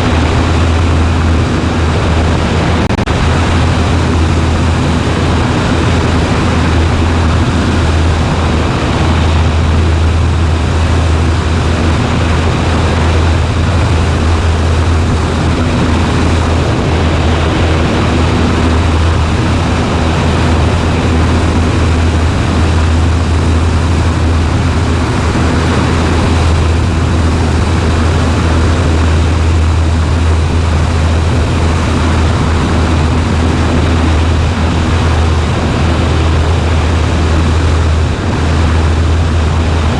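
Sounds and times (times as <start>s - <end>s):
propeller plane engine droning: 0.0s - 39.9s
rushing air: 0.0s - 39.9s.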